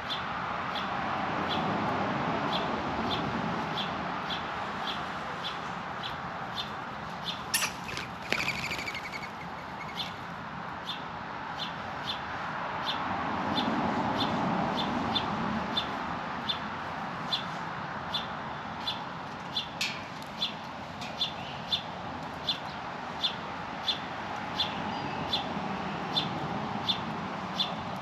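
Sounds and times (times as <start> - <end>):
short high bird chirps: 7.5 - 10.1
harsh bird squawking: 7.5 - 10.2.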